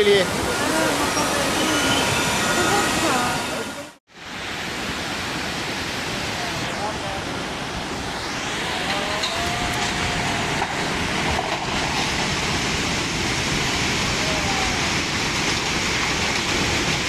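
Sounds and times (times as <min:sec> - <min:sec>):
floodwater rushing through street: 0:00.0 - 0:17.0.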